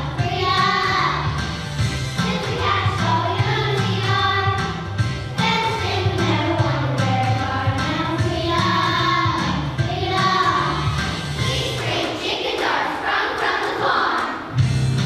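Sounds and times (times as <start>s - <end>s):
musical accompaniment: 0.0s - 15.0s
group of singers singing: 8.5s - 14.6s.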